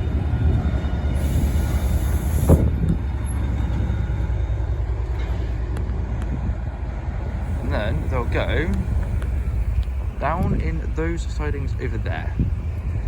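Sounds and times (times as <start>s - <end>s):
diesel locomotive engine rumbling: 0.0s - 13.0s
hiss: 1.2s - 2.8s.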